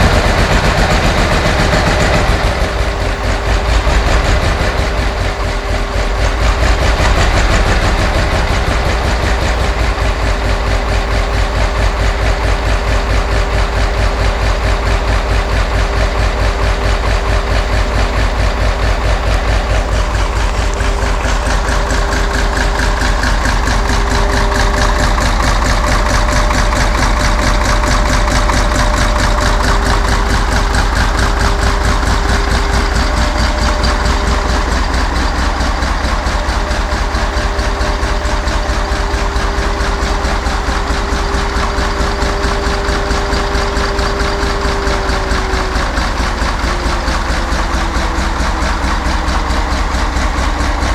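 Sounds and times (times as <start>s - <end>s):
diesel engine idling: 0.0s - 50.9s
steady engine whine: 0.0s - 50.9s.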